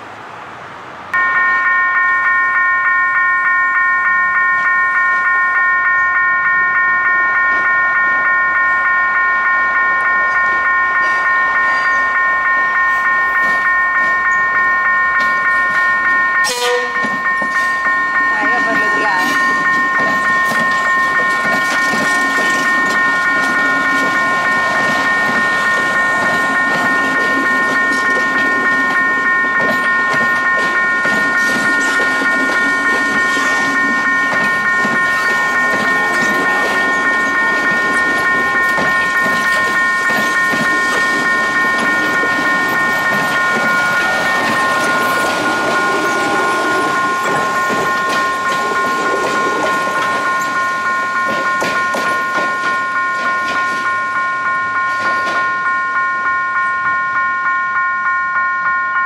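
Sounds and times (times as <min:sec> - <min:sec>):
high-pitched train whine: 0:00.0 - 0:59.0
train wheels clattering over rails: 0:19.3 - 0:54.0.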